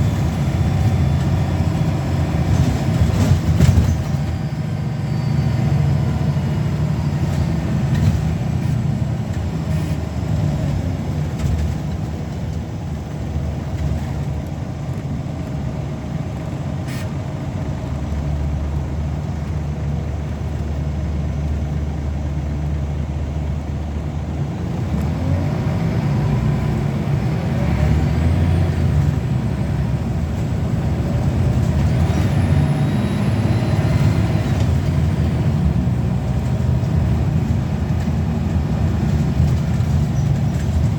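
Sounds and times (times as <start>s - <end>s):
bus diesel engine running: 0.0s - 40.9s
rising engine whine: 20.0s - 40.6s.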